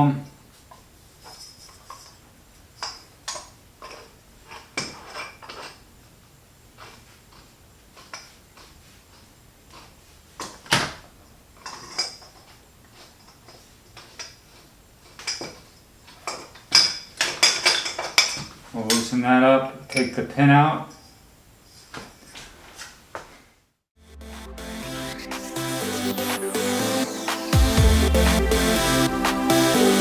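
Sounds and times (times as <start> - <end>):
metal tools clinking: 15.2 - 19.2.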